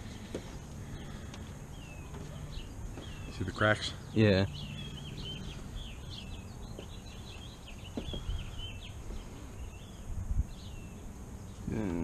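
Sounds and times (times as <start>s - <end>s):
small birds chirping: 0.0s - 12.0s
faint knocks: 7.9s - 8.4s.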